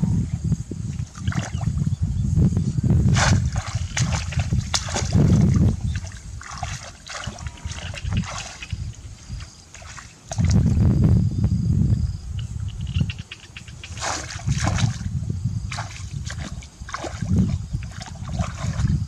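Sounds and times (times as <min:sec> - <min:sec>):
heavy low rumbling: 0:00.0 - 0:00.9, 0:10.4 - 0:13.0
water splashing and sloshing: 0:00.8 - 0:01.9, 0:03.1 - 0:10.9, 0:12.7 - 0:19.0.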